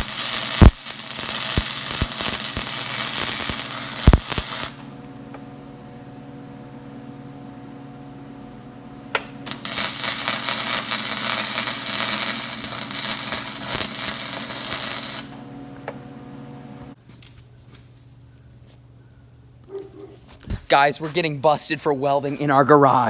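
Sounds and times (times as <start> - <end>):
welding arc crackling and sizzling: 0.0 - 7.6, 9.0 - 17.0
welder humming: 0.0 - 17.0.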